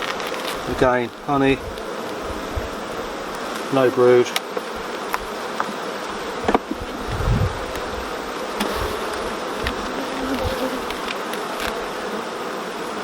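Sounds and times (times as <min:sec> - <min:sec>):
honeybees buzzing: 0:00.0 - 0:13.0
low bump: 0:06.4 - 0:08.1.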